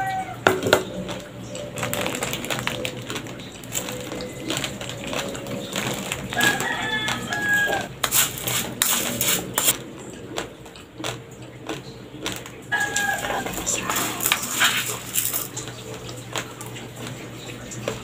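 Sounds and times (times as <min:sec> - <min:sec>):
rooster crowing: 0:00.0 - 0:00.6, 0:06.3 - 0:08.6, 0:12.7 - 0:14.8
raw rice being chewed: 0:00.8 - 0:18.0.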